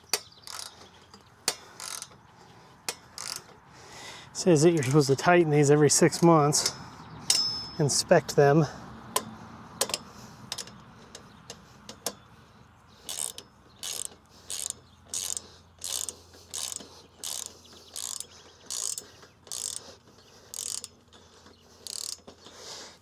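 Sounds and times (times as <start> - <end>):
socket ratchet wrench clicking: 0.1 - 2.2, 2.9 - 3.6, 9.1 - 12.2, 13.0 - 22.6.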